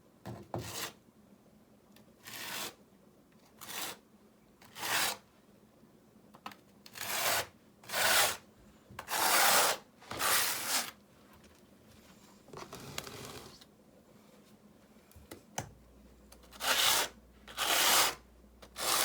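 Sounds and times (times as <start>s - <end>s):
trowel scraping gritty mortar: 4.7s - 5.2s, 9.1s - 10.9s, 16.5s - 18.2s, 18.8s - 19.0s.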